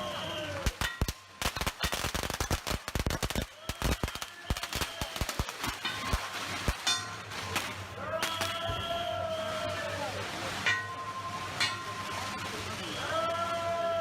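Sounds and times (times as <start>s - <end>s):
firecrackers banging: 0.0s - 8.9s.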